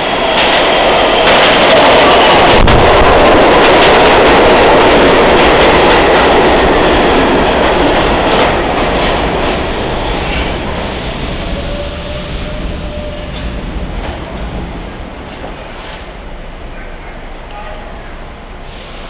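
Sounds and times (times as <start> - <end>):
subway train running through tunnel: 0.0 - 19.0.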